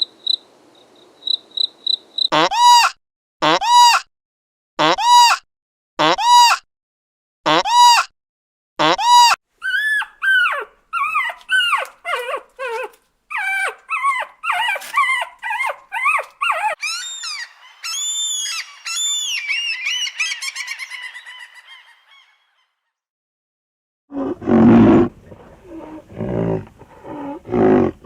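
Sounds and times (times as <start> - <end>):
dog yelping and whining: 9.1 - 20.4.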